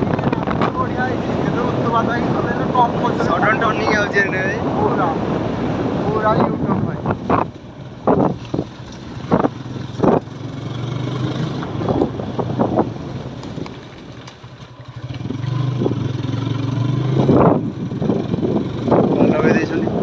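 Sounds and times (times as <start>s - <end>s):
motorcycle engine revving: 7.0s - 20.0s.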